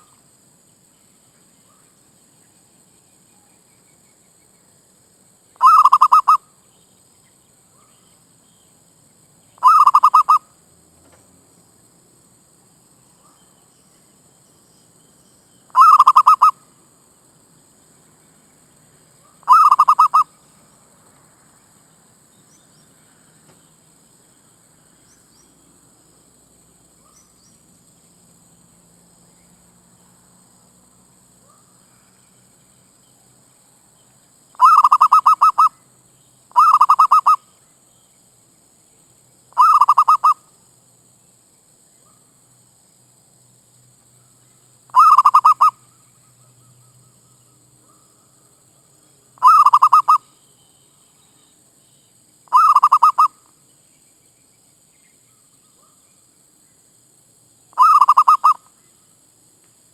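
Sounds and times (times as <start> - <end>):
dove cooing: 5.6 - 6.4, 9.6 - 10.4, 15.8 - 16.5, 19.5 - 20.2, 34.6 - 35.7, 36.5 - 37.4, 39.6 - 40.4, 45.0 - 45.7, 49.4 - 50.2, 52.5 - 53.3, 57.8 - 58.6.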